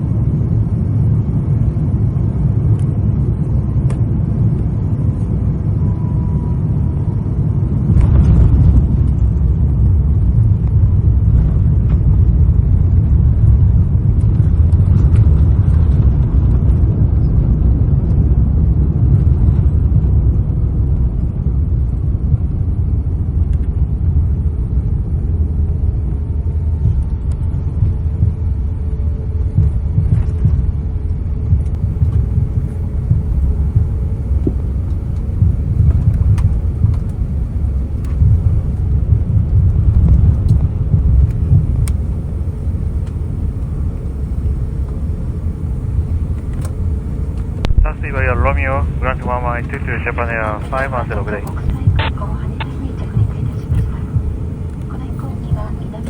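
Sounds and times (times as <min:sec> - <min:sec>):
airplane landing rumble in cabin: 0:00.0 - 0:56.0.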